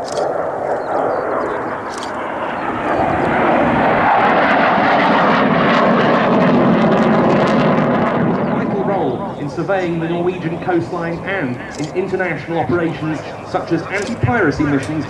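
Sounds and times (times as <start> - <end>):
aircraft engine roar: 0.0 - 15.0.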